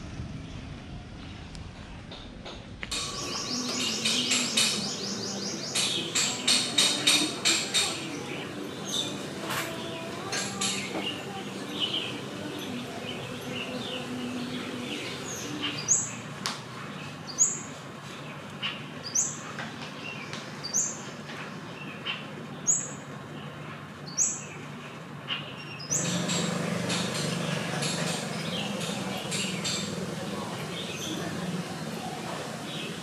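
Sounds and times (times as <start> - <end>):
low background hum: 0.0 - 33.0
bird rising chirp: 2.9 - 5.8.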